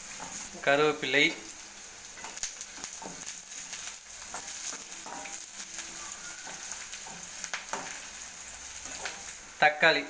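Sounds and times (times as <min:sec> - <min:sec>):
onions sizzling in hot oil: 0:00.0 - 0:10.0
metal spoon scraping and tapping a pan: 0:00.1 - 0:00.4, 0:02.2 - 0:08.2, 0:08.8 - 0:09.3.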